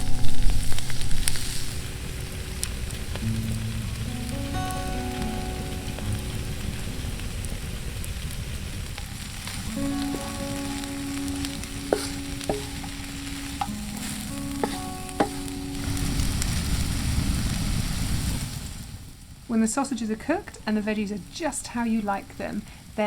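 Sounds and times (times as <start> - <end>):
food sizzling in frying pan: 0.0 - 18.8
utensil clicking against pan: 11.9 - 15.5.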